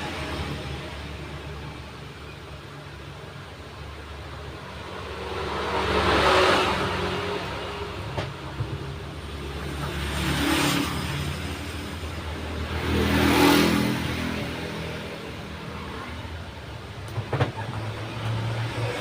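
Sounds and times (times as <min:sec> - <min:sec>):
vehicles passing by: 0:00.0 - 0:19.0.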